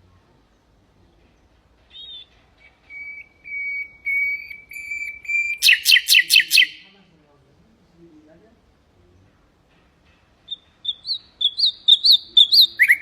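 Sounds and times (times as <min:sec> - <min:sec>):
nightingale singing: 0:00.4 - 0:07.0, 0:10.4 - 0:13.0.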